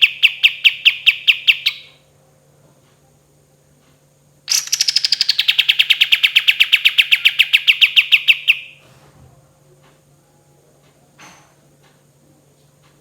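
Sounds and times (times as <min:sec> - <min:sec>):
bulbul rapid trill: 0:04.5 - 0:08.7.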